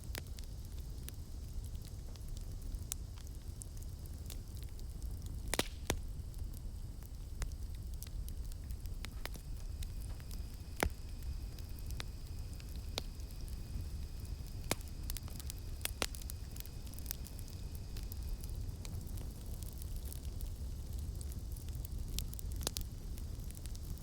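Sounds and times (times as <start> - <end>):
campfire crackling: 0.0 - 24.0
cicadas droning: 6.0 - 19.3.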